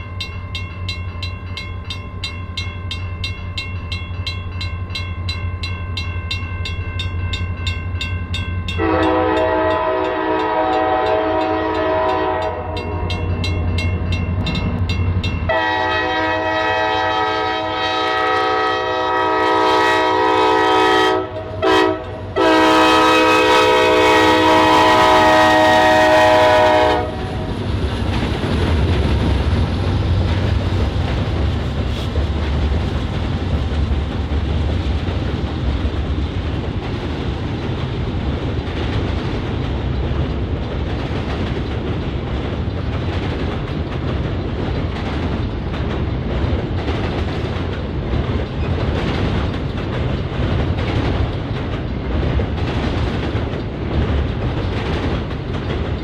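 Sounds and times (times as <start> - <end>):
train rumbling past: 0.0 - 56.0
locomotive air horn chord: 8.8 - 13.1, 15.5 - 27.4
wheels clacking over rail joints: 19.6 - 56.0.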